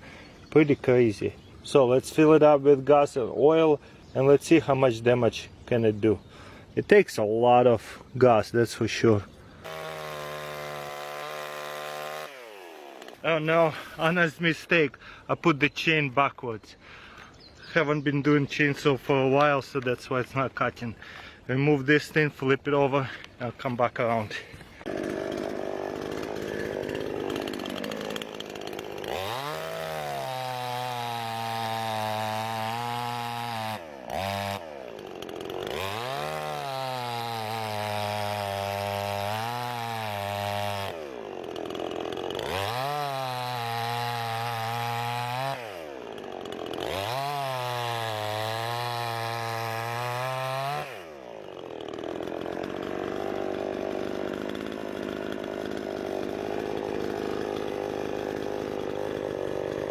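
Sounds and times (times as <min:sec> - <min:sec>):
chainsaw cutting log: 0:09.6 - 0:15.2, 0:18.5 - 0:59.9
chainsaw idling: 0:09.6 - 0:15.2, 0:22.9 - 0:59.9.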